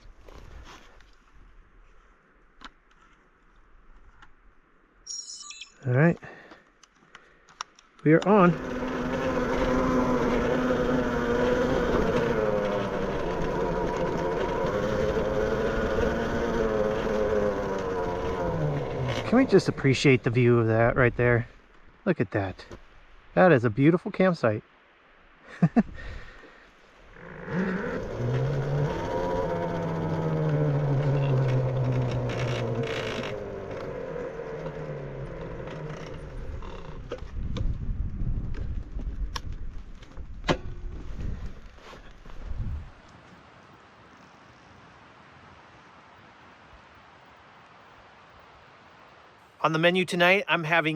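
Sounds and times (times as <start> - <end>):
clicks and creaks: 6.1 - 20.3, 27.1 - 37.8
vehicle motor hum: 8.1 - 20.6, 27.1 - 39.0.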